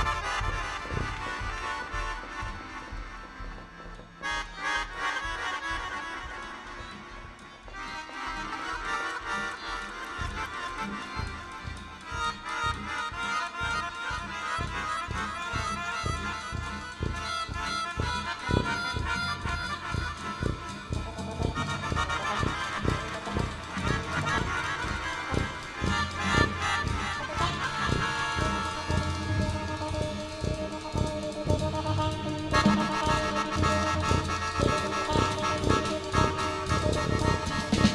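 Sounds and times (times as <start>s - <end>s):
drums keeping a beat: 0.0s - 37.9s
brass ensemble jazz: 18.4s - 37.9s.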